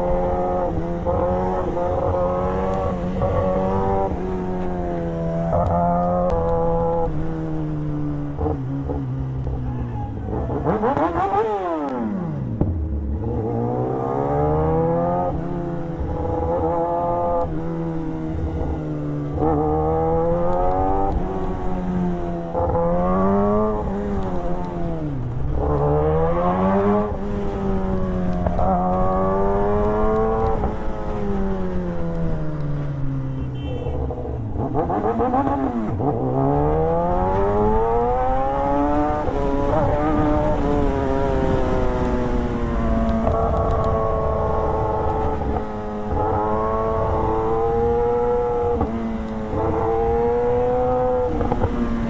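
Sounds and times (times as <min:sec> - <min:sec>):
motorcycle engine accelerating: 0:10.2 - 0:33.1, 0:34.0 - 0:52.0.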